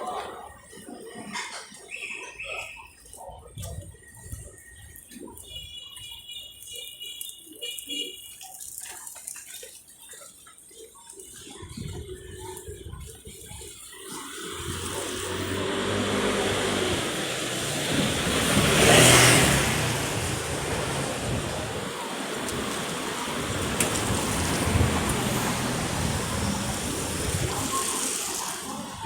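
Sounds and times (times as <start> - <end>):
street traffic engines running: 14.0 - 29.0
vehicle passing close: 14.2 - 28.8.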